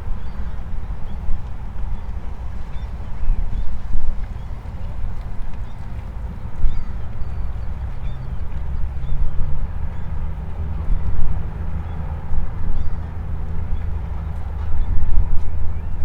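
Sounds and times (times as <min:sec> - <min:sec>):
boat engine humming: 0:00.0 - 0:16.0
wind buffeting microphone: 0:00.0 - 0:16.0.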